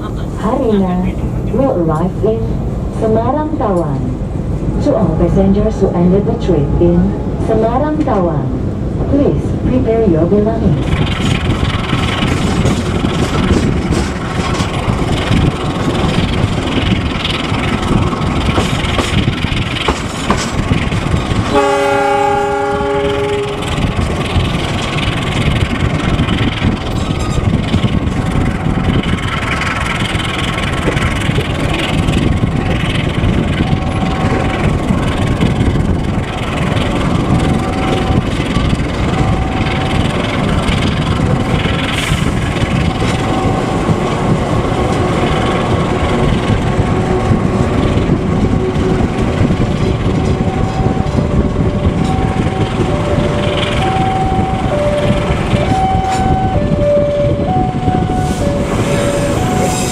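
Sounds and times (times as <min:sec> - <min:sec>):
train wheels rumbling on rails: 0:00.0 - 0:59.9
train horn blast: 0:21.5 - 0:23.7, 0:57.2 - 0:59.9.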